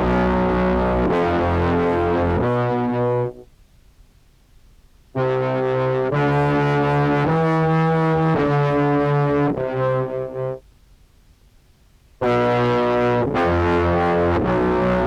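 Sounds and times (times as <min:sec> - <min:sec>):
buzzy fuzz clarinet notes: 0:00.0 - 0:03.5, 0:05.2 - 0:10.6, 0:12.2 - 0:15.0.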